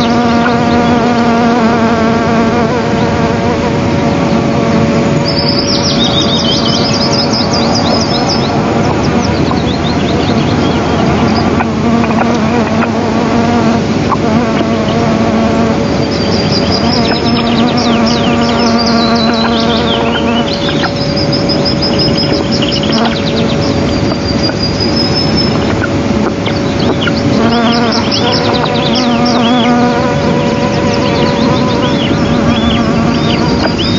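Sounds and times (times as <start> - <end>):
bird chirps and trills: 0.0 - 33.9
fly buzzing: 0.0 - 33.9.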